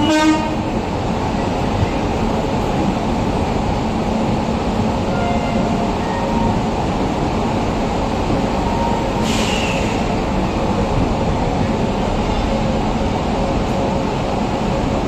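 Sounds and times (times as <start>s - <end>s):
train wheels rumbling on rails: 0.0s - 15.0s
brief high hiss: 9.2s - 10.0s.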